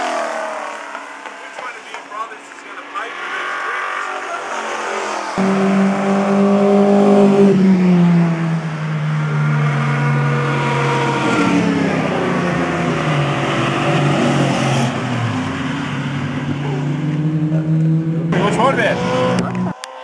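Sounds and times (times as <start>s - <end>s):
race car engines: 0.0s - 20.0s.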